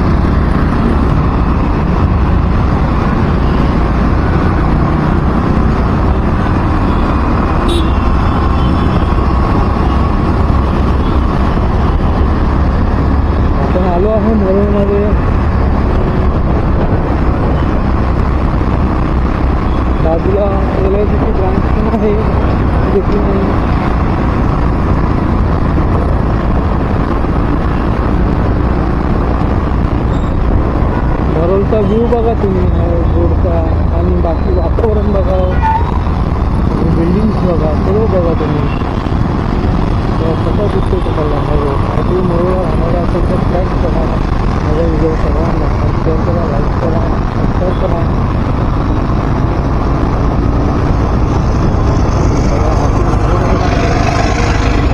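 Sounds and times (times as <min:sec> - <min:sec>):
road traffic rumble: 0:00.0 - 0:54.9
wind buffeting microphone: 0:15.1 - 0:31.4, 0:38.6 - 0:40.5, 0:41.7 - 0:54.9.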